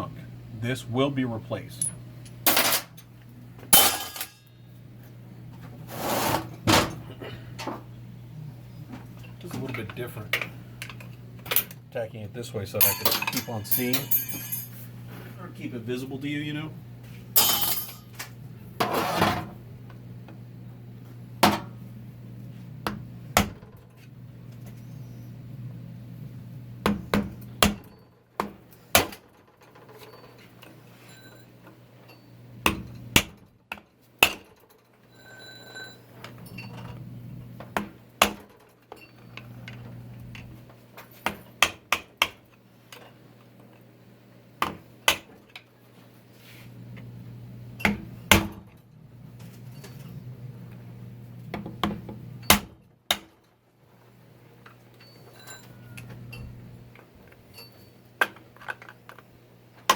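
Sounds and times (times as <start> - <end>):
steady low hum: 0.0 - 27.8
metal parts knocking and clinking: 3.8 - 4.5, 12.8 - 14.8, 17.4 - 18.2.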